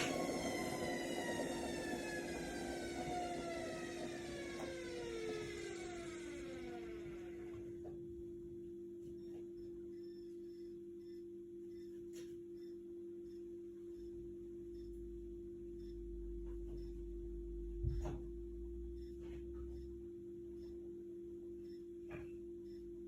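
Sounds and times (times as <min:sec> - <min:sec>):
washing machine hum: 0:00.0 - 0:10.2, 0:14.0 - 0:20.0
washing machine low rumble: 0:00.0 - 0:10.6, 0:14.0 - 0:23.0.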